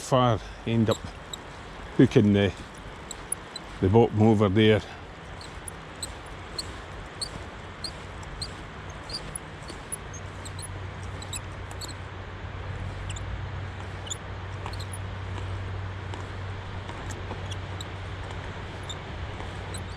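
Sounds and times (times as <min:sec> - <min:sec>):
fishing reel squeaking: 0:00.8 - 0:01.5, 0:02.1 - 0:03.8, 0:05.3 - 0:12.0, 0:13.8 - 0:15.6, 0:18.6 - 0:19.9.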